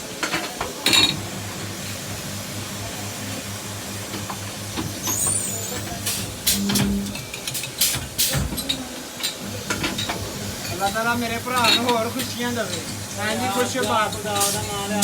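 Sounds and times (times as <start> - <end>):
steady noisy hiss: 0.0 - 15.0
workshop machine throbbing: 1.2 - 8.2.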